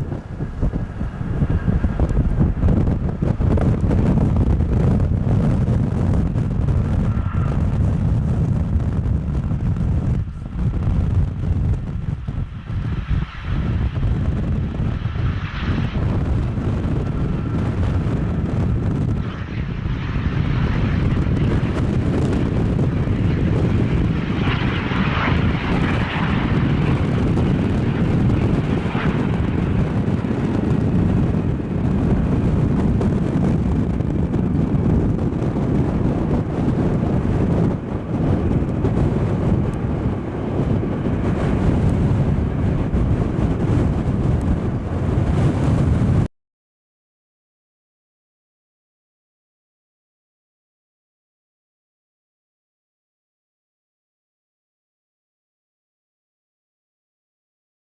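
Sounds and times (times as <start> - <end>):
jet engines running: 0.0 - 46.3.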